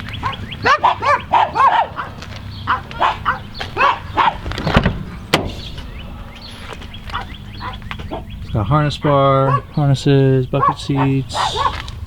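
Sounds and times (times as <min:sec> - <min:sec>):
dog barking: 0:00.2 - 0:04.4, 0:07.1 - 0:08.3, 0:09.0 - 0:09.8, 0:10.6 - 0:12.0.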